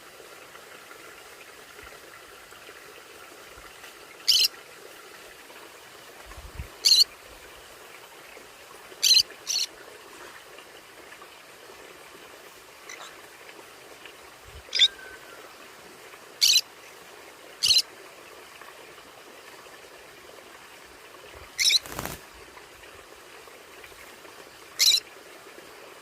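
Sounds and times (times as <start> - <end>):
steady background hiss: 0.0 - 26.0
parrots high-pitched calls: 4.3 - 4.5, 6.8 - 7.0, 9.0 - 9.7, 14.7 - 15.3, 16.4 - 16.6, 17.6 - 17.8, 21.6 - 22.2, 24.8 - 25.0.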